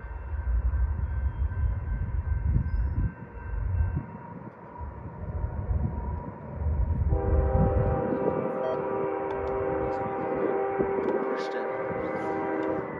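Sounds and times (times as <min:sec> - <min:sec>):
freight train rumbling past: 0:00.0 - 0:12.9
train air horn: 0:07.1 - 0:12.9.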